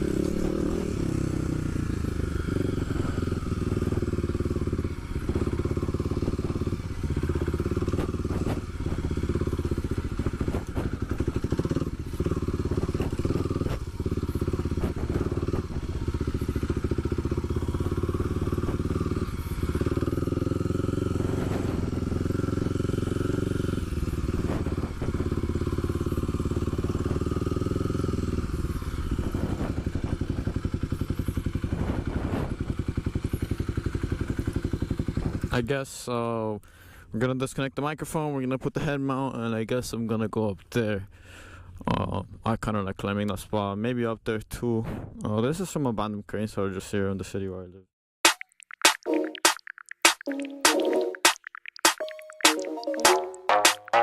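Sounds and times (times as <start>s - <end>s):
motorcycle engine running: 0.0s - 35.6s.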